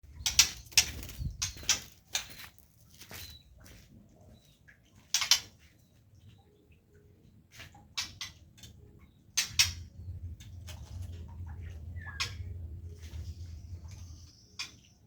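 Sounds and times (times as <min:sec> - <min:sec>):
scraping and rattling bird cage: 0:00.1 - 0:03.4.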